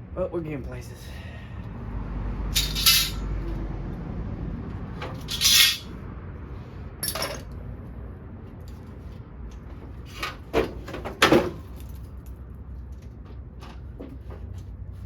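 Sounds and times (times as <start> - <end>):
metal tools clanking: 2.6 - 3.3, 5.0 - 5.9, 7.0 - 7.5.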